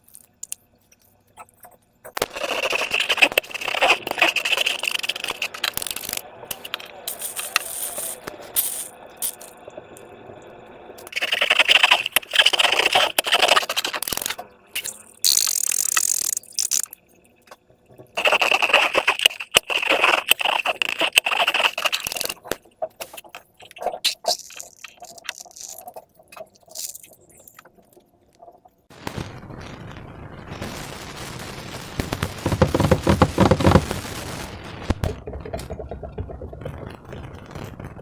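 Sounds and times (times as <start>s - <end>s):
scraping and rattling: 32.3s - 34.0s.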